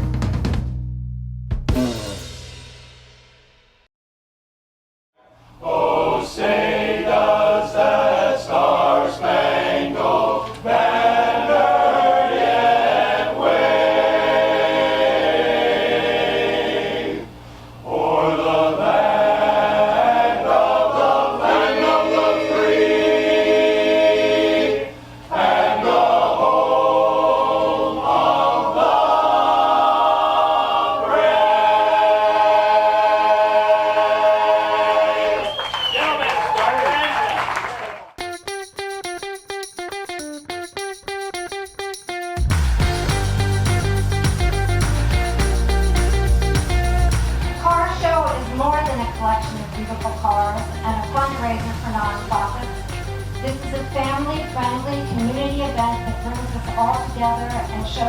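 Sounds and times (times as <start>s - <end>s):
choir singing in harmony: 5.5s - 35.6s.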